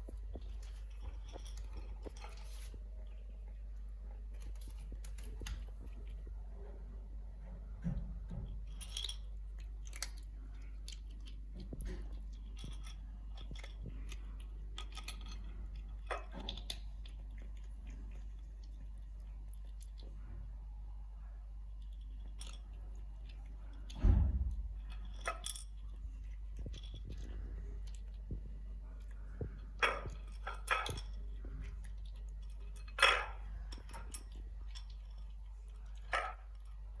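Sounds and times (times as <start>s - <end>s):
light clinks and knocks: 0.0s - 2.8s
steady low rumble: 0.0s - 16.1s, 16.9s - 37.0s
heavy low thump: 24.0s - 24.8s.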